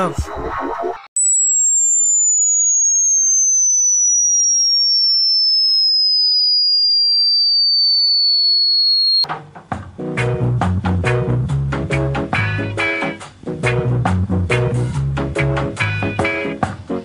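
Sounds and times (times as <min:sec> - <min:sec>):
electronic tone gliding downward: 0:01.2 - 0:09.2.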